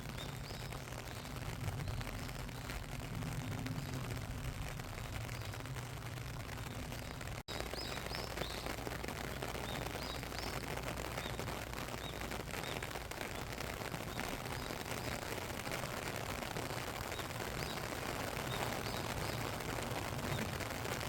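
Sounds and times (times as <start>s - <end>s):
raindrops striking close by: 0.0s - 21.0s
steady rain falling: 0.0s - 21.0s
small bird chirping: 6.6s - 15.3s, 17.1s - 19.6s.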